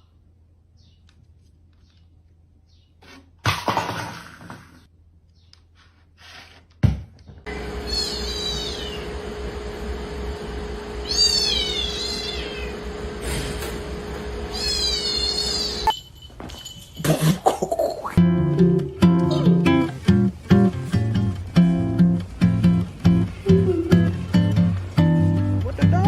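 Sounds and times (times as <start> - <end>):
steady background hum: 7.4 - 16.8, 17.4 - 26.0
cat meowing: 7.9 - 9.1, 11.0 - 12.8, 14.5 - 15.9.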